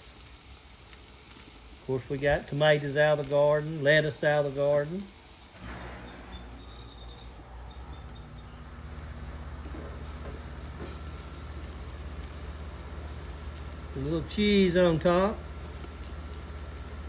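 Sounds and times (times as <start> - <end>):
low steady hum: 5.5 - 17.0
faint high chirps: 5.6 - 8.9.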